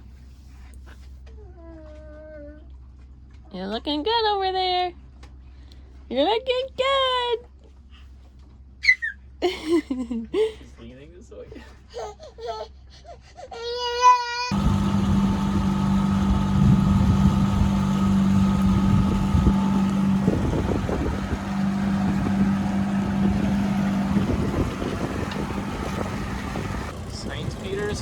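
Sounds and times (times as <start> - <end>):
boat engine humming: 14.5 - 28.0
water: 14.5 - 28.0
wind noise: 14.6 - 28.0.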